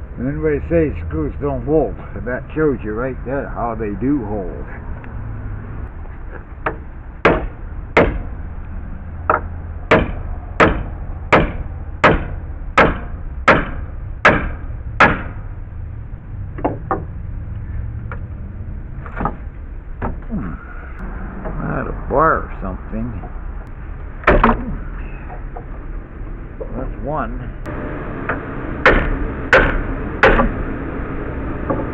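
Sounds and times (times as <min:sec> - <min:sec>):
hammer strikes: 0:06.6 - 0:08.3, 0:09.3 - 0:15.4, 0:24.2 - 0:24.7, 0:28.3 - 0:30.6.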